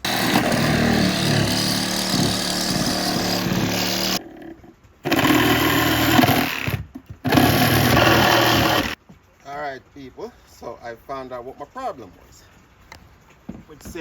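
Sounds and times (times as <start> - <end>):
power drill backing out screws: 0.0 - 4.2, 5.1 - 9.0.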